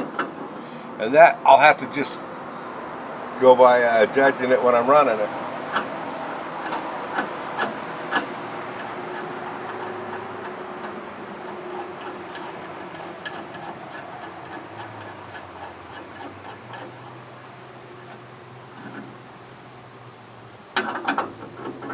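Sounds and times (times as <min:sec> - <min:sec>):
sharp metallic clicks: 0:05.7 - 0:17.2.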